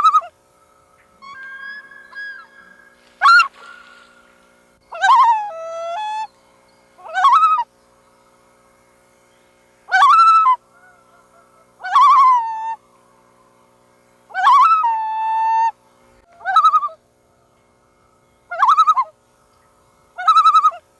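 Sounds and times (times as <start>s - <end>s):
loon calls: 1.0s - 6.3s, 7.0s - 7.7s, 9.9s - 12.8s, 14.3s - 17.0s, 18.5s - 19.2s, 20.2s - 20.8s.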